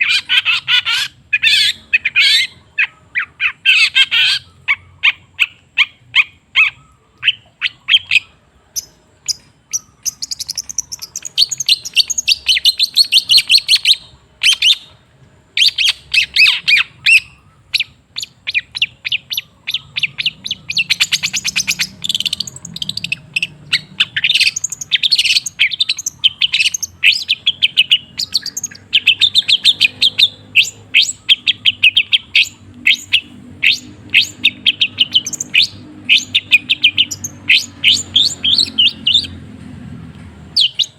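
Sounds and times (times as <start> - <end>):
shrike singing sharp chirps: 15.6 - 39.4.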